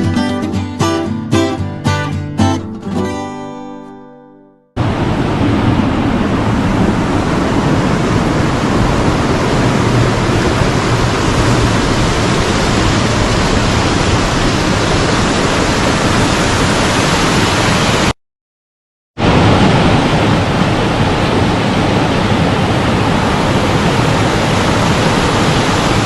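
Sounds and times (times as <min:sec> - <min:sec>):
waterfall roaring: 0:04.8 - 0:18.2, 0:19.2 - 0:26.0.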